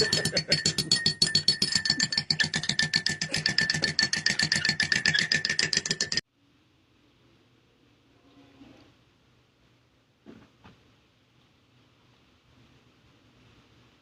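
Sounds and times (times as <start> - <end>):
fast wood-block percussion beat: 0.0 - 6.2.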